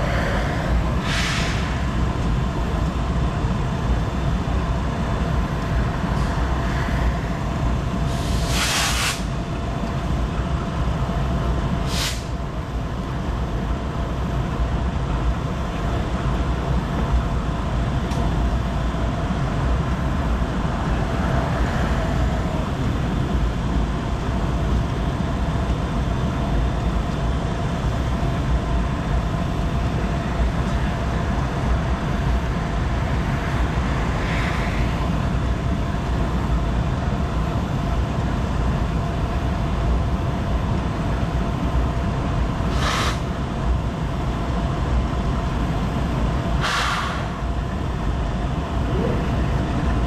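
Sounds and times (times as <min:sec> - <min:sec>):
train rolling past rumbling: 0:00.0 - 0:50.0
short hisses: 0:01.0 - 0:01.8, 0:42.7 - 0:43.3, 0:46.6 - 0:47.4.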